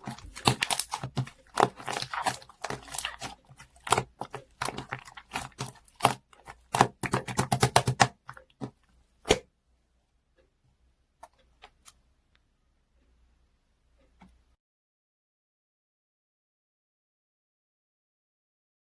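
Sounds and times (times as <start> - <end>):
rapid clicks and taps: 0.1 - 9.4.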